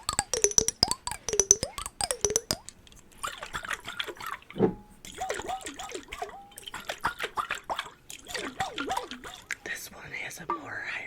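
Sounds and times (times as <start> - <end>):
dull thump: 4.6 - 5.0.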